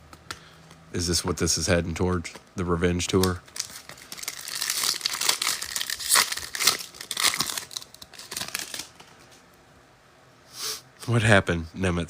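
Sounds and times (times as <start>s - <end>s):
foil wrapper tearing and crinkling: 3.1s - 9.1s.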